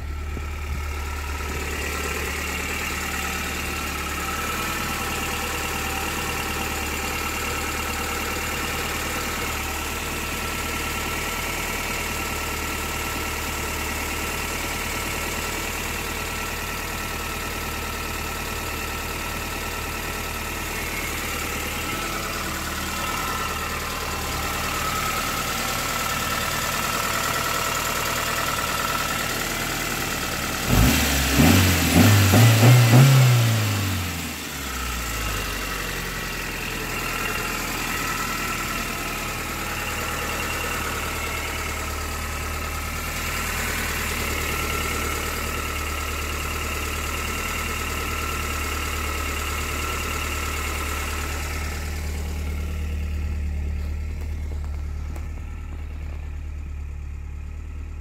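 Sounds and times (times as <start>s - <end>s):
car engine idling: 0.0s - 58.0s
engine revving in throttle blips: 30.6s - 35.6s.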